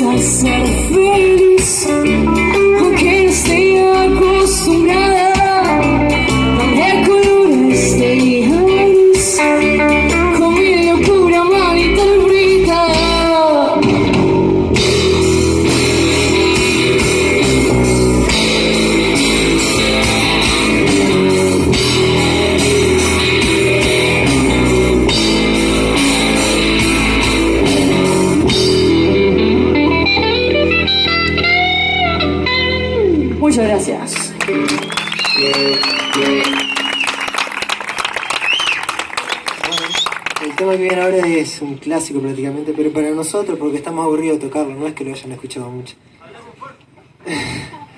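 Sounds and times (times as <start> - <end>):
lead guitar bending notes: 0.0 - 37.7
live rock band playing: 0.0 - 40.3
drums and cymbals: 13.8 - 29.1.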